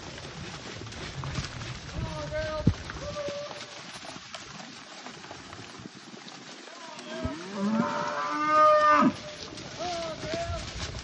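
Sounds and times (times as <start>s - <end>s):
cow mooing: 7.1s - 9.2s.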